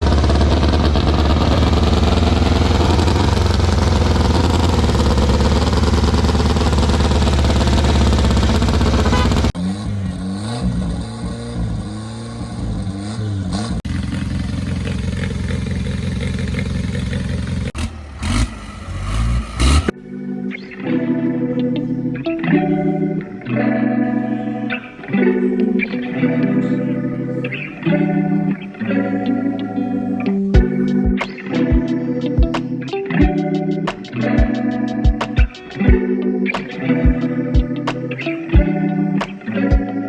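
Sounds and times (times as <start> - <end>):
racing car engine running hard: 0.0 - 19.9
engines revving in throttle blips: 0.0 - 20.0.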